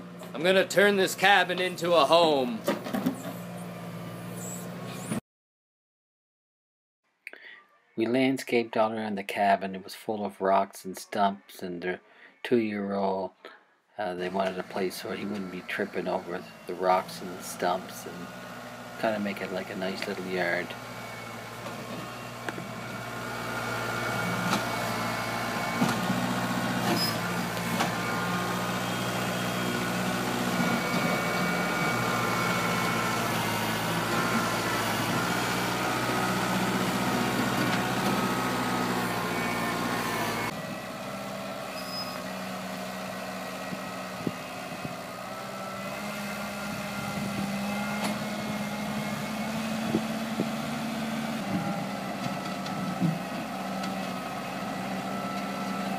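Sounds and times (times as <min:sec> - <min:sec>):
tractor diesel engine running: 0:00.0 - 0:05.2, 0:14.1 - 0:55.9
backhoe clanks and knocks: 0:02.6 - 0:03.4, 0:51.5 - 0:54.1.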